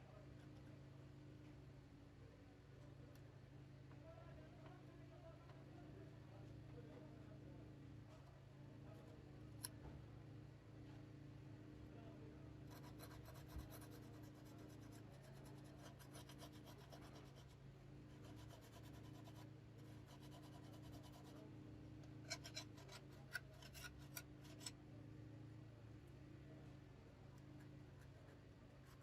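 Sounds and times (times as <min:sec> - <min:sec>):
steady low hum: 0:00.0 - 0:29.0
tool scraping on smartphone: 0:12.6 - 0:21.5, 0:22.2 - 0:24.8, 0:27.6 - 0:29.0.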